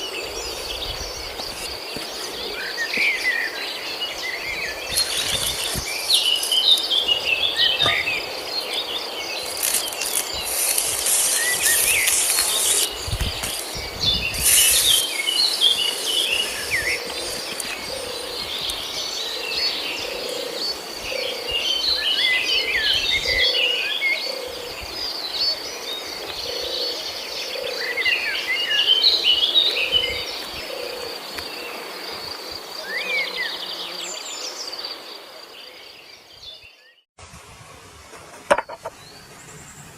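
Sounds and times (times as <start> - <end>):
birds chirping: 0.0 - 31.8
high insect drone: 0.0 - 35.4
bursts of high hiss: 9.4 - 17.6.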